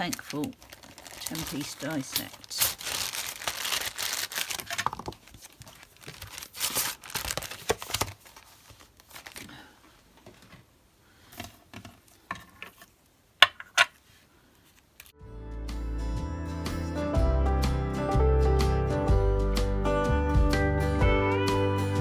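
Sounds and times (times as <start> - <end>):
paper rustling: 0.0 - 10.6.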